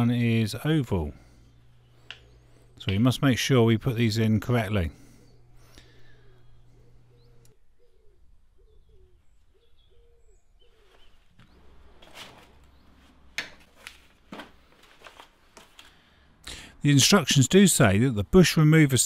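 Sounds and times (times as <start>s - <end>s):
bird cooing: 5.2s - 11.8s
cardboard box and paper rustling: 13.6s - 15.8s.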